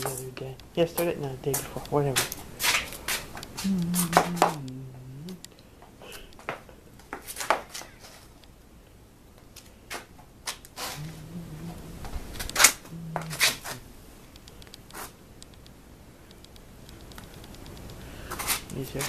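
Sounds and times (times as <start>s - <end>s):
person humming low: 3.6s - 6.2s, 10.8s - 13.9s.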